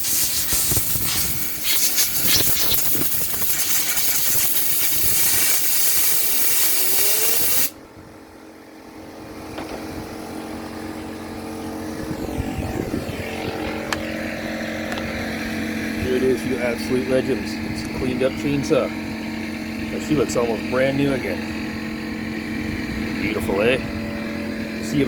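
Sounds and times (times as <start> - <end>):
compressed air hissing: 0.0 - 7.8
motor hum: 6.6 - 25.0.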